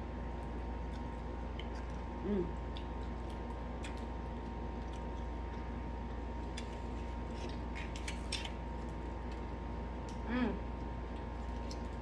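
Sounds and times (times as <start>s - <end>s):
chewing fried chicken: 0.0s - 12.0s
steady background hum: 0.0s - 12.0s
person humming mm: 2.2s - 2.5s, 10.2s - 10.6s.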